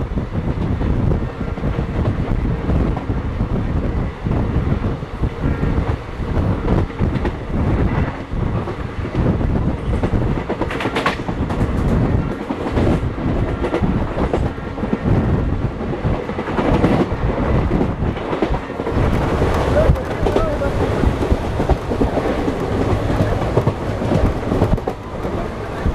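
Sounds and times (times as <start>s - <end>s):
train wheels rumbling on rails: 0.0s - 25.9s
wheels clacking over rail joints: 15.7s - 25.9s.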